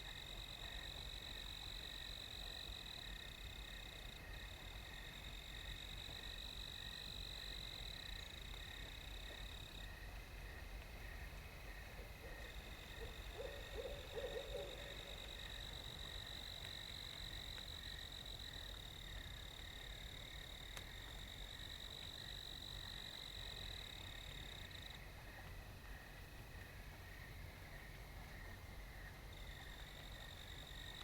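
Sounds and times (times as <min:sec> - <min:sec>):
night insects trilling: 0:00.0 - 0:31.0
distant owl hooting: 0:13.0 - 0:15.2.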